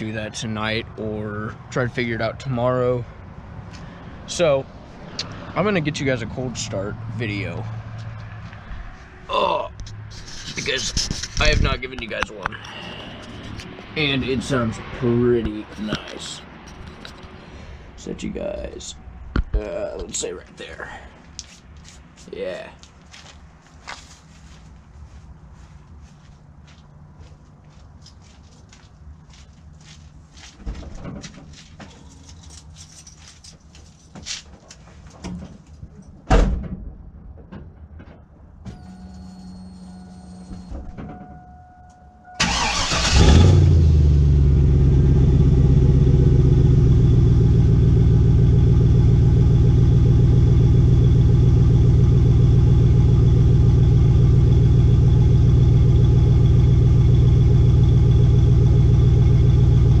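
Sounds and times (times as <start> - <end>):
engine cranking: 42.4 - 43.8
truck engine revving and idling: 42.4 - 60.0.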